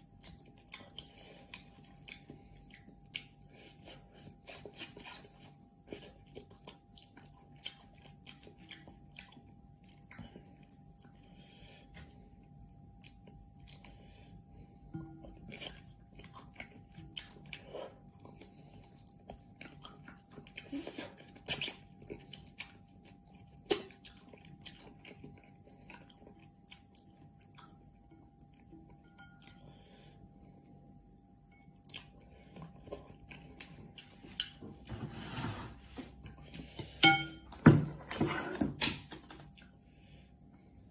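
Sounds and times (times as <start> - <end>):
person chewing noodles: 0.0 - 35.2, 35.8 - 37.5, 39.0 - 40.9.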